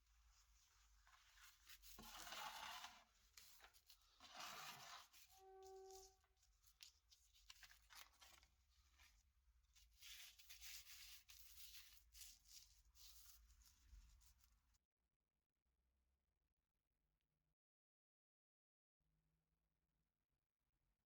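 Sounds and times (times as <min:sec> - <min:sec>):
faint scraping and rubbing: 0:00.2 - 0:14.6.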